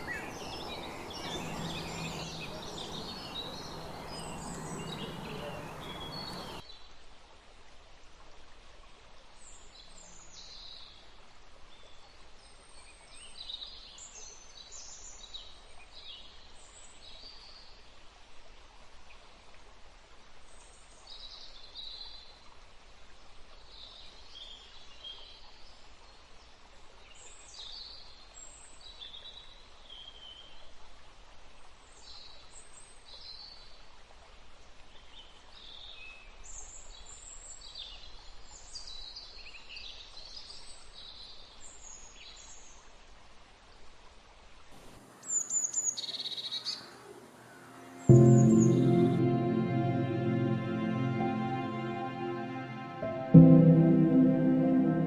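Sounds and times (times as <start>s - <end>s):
birds chirping: 0.0s - 6.6s
outdoor background hiss: 0.0s - 8.0s, 43.2s - 55.0s.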